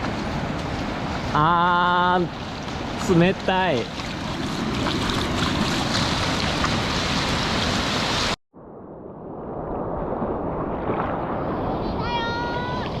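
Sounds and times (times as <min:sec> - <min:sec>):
wind rushing: 0:04.1 - 0:13.0.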